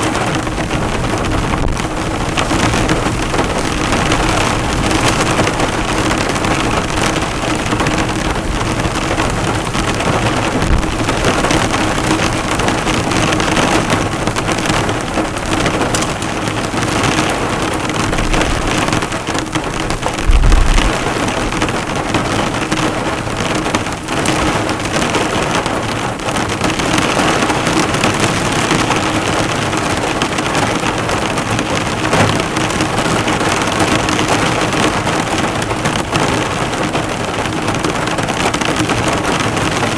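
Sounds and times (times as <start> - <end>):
heavy rain drumming on a car: 0.0 - 39.9
low rumble: 20.0 - 21.6.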